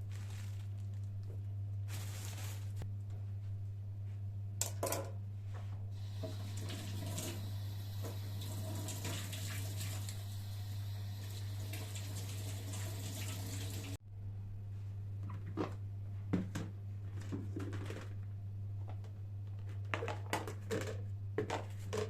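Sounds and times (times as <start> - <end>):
tap water running into sink: 6.0 - 14.0.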